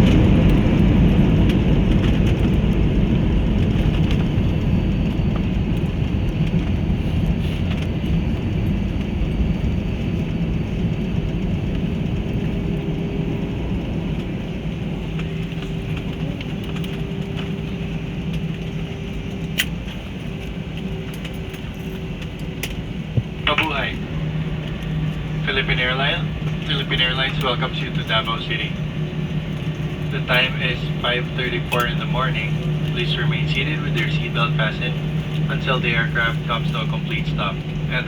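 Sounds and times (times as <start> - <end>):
rumble of engines and wheels: 0.0 - 38.0
steady hum: 22.0 - 38.0.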